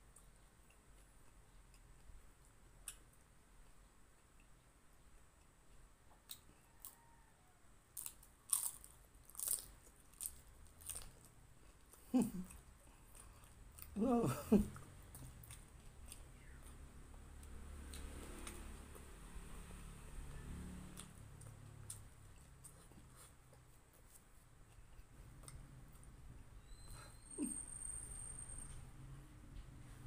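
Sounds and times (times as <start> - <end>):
person chewing crunchy food: 7.9 - 14.0, 14.8 - 19.2.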